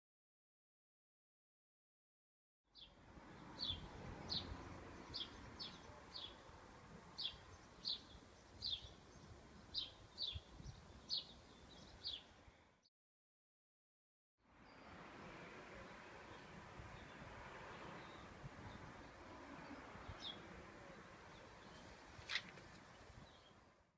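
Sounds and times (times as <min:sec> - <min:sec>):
outdoor background noise: 0:02.7 - 0:12.9, 0:14.4 - 0:23.9
small bird chirping: 0:07.2 - 0:12.4.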